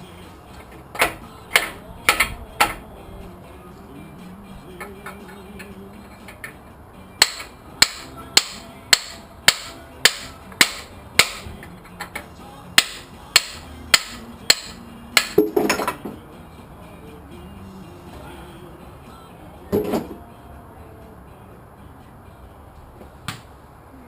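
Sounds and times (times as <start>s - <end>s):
hammer blows on metal: 7.2s - 16.3s.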